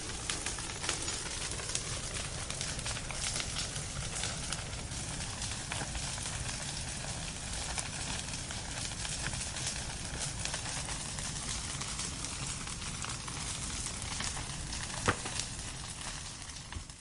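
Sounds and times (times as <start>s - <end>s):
wood fire crackling: 0.0s - 17.0s
loud pop from fire: 11.5s - 17.0s.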